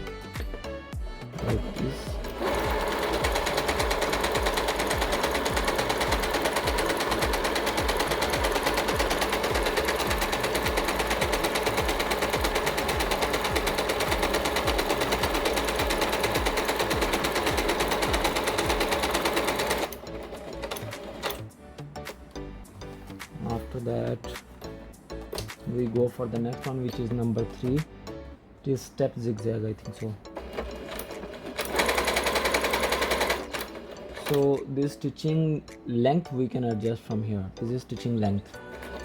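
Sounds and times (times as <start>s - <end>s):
sewing machine stitching: 1.3s - 21.4s, 30.4s - 34.6s, 38.6s - 39.0s.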